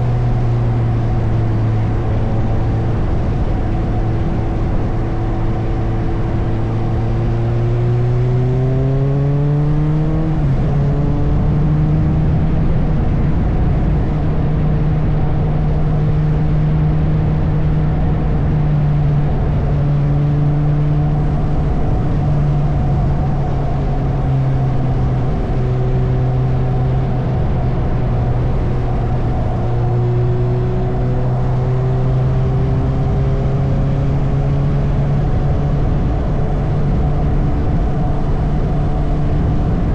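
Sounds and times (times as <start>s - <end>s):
wind and road rush: 0.0s - 39.9s
motorcycle engine revving: 6.6s - 12.6s.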